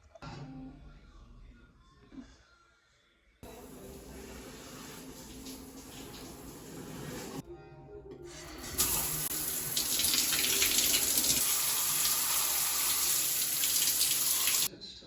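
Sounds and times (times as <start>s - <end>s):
running water rushing: 3.4s - 7.4s, 8.6s - 14.7s.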